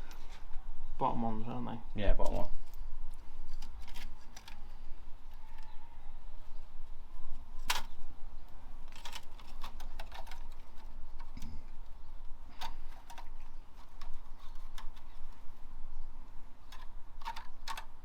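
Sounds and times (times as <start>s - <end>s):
hand tools clicking and tapping: 12.5s - 15.4s.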